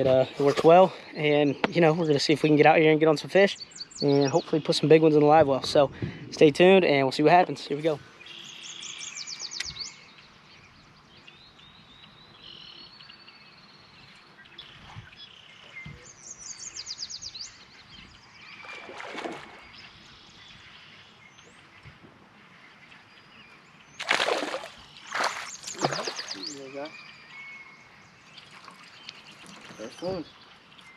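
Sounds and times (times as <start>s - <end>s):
faint outdoor hiss: 0.0s - 18.6s
songbirds singing: 0.0s - 30.9s.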